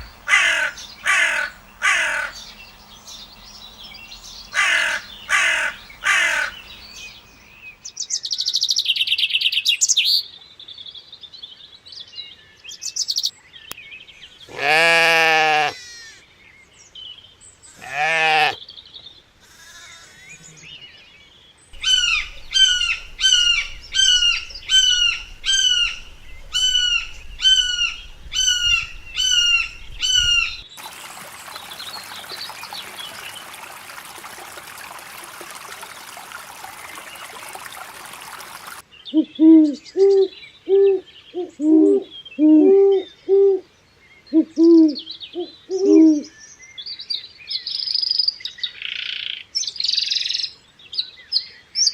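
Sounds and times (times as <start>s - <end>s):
high downward-sliding bird calls: 21.8s - 38.8s.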